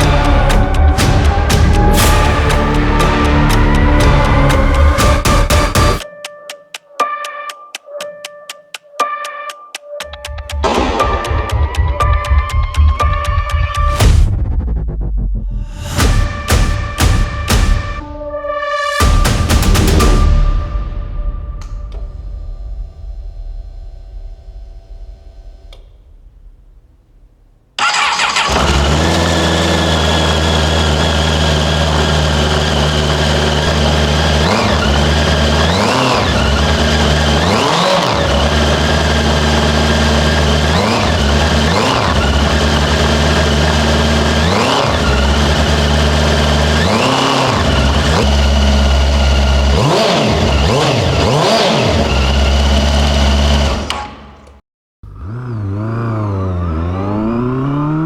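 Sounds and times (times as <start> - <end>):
another engine revving: 0.0 - 6.0, 19.0 - 20.6, 23.2 - 58.0
engine revving: 0.0 - 6.0, 19.0 - 58.0
vehicle engine running steadily: 28.5 - 54.3.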